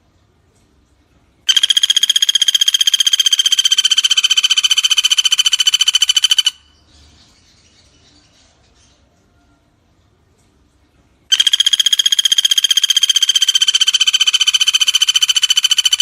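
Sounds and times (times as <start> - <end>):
woodpecker rattling trill: 1.5 - 6.8, 11.3 - 16.0.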